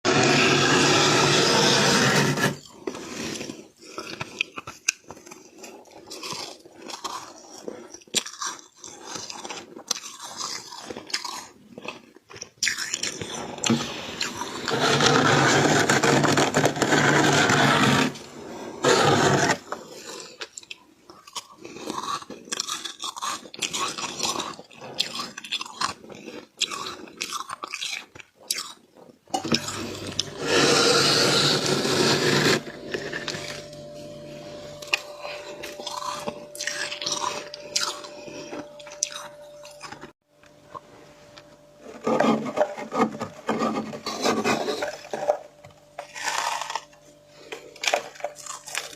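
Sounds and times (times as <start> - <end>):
crunching of chewed frost: 2.6 - 14.7, 19.6 - 33.8, 34.8 - 40.8, 46.0 - 48.9.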